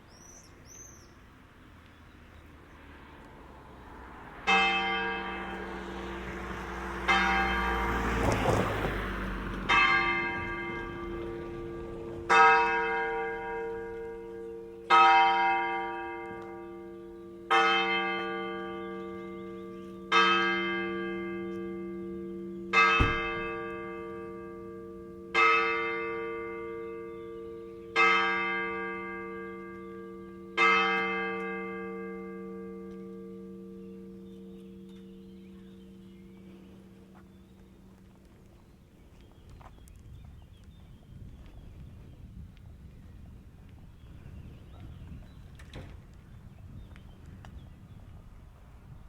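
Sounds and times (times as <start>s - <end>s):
church bell tolling: 4.4s - 8.2s, 9.6s - 36.8s.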